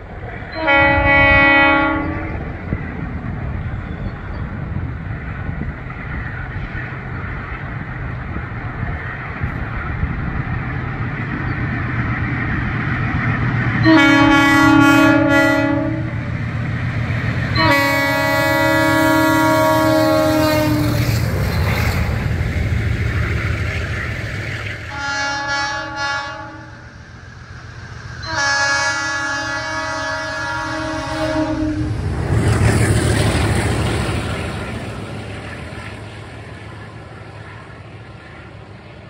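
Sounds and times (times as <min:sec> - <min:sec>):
locomotive air horn blasts: 0:00.5 - 0:02.4, 0:13.8 - 0:16.3, 0:17.5 - 0:21.2, 0:24.9 - 0:26.9, 0:28.2 - 0:32.0.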